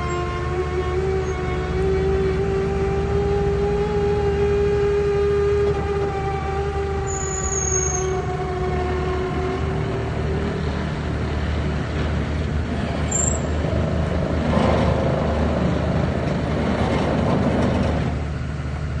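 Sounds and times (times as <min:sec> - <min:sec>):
asphalt paver engine drone: 0:00.0 - 0:19.0
machine rushing and grinding: 0:08.0 - 0:18.2.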